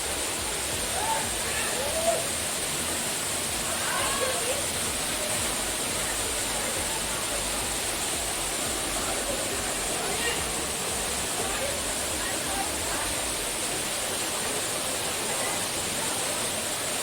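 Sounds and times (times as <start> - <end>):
waterfall pouring: 0.0 - 17.0.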